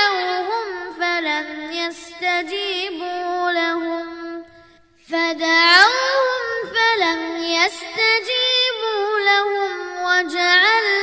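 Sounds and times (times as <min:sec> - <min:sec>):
child reciting melodically: 0:05.1 - 0:11.0.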